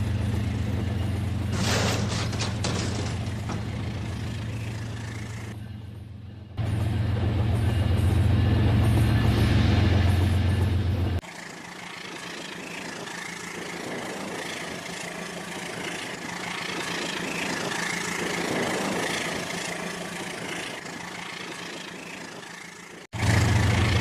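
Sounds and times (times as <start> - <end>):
model train rumbling on track: 6.4 - 24.0.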